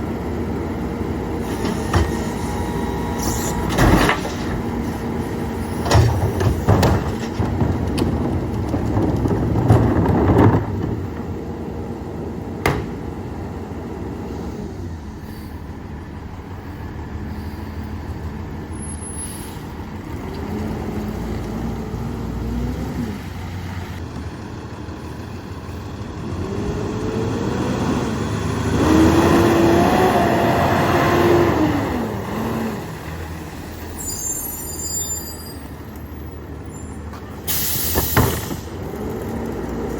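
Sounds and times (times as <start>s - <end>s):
diesel engine running rough: 0.0s - 33.9s, 36.1s - 39.9s
hydraulic whine: 1.4s - 7.2s
metal clanks and knocks: 3.5s - 5.0s, 5.7s - 11.3s, 12.6s - 13.1s.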